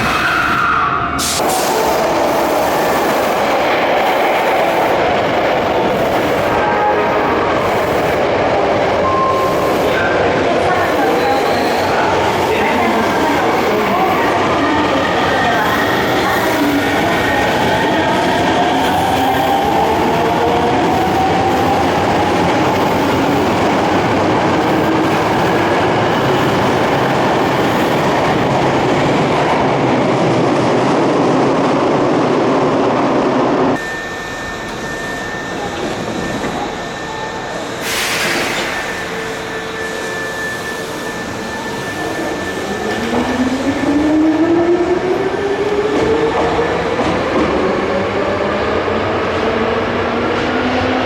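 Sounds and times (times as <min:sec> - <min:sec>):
subway train running: 0:00.0 - 0:51.0
steady high tone: 0:33.7 - 0:38.0.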